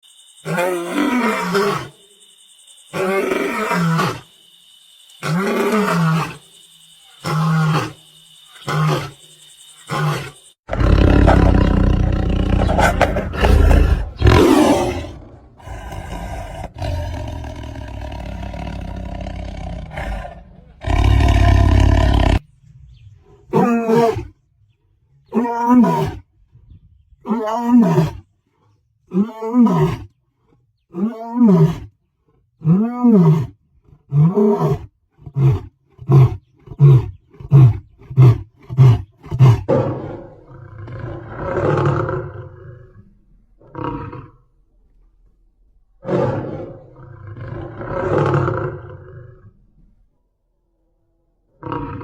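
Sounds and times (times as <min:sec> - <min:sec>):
lion and tiger roaring: 0:00.5 - 0:02.0, 0:05.2 - 0:06.4, 0:07.2 - 0:08.0, 0:09.9 - 0:22.5, 0:23.2 - 0:24.4, 0:25.2 - 0:26.3, 0:27.2 - 0:45.2, 0:45.9 - 0:50.1, 0:51.5 - 0:52.0.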